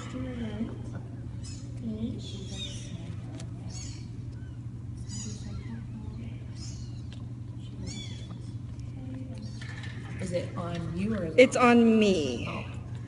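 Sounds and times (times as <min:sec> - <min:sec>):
steady low hum: 0:00.0 - 0:13.0
kittens mewing: 0:02.4 - 0:08.5.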